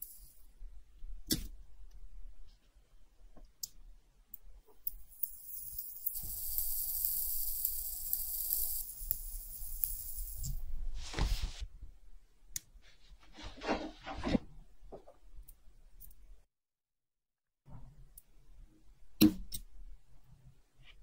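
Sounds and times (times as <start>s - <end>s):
rubbing and scraping on workbench: 12.9s - 15.1s.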